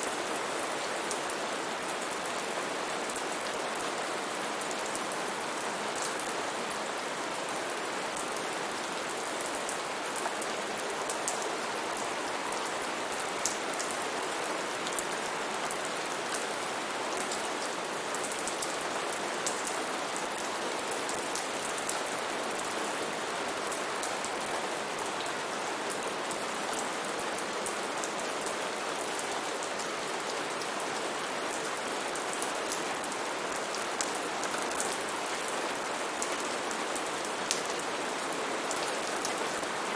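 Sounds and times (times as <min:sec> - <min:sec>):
steady rain hiss: 0:00.0 - 0:39.9
raindrops ticking on surfaces: 0:08.0 - 0:39.8.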